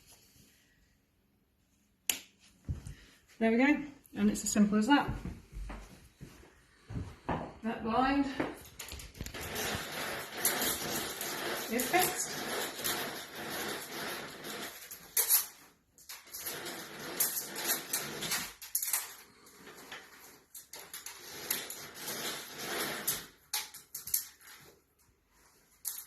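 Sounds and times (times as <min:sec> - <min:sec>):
rustling and scraping: 0:08.2 - 0:26.0.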